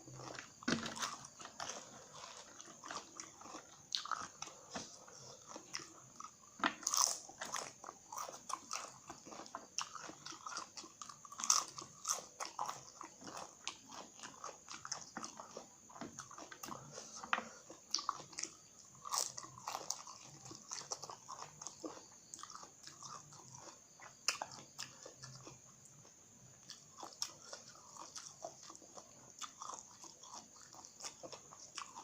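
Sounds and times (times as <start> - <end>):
chips being bitten and chewed: 0.2 - 17.0, 26.7 - 32.0.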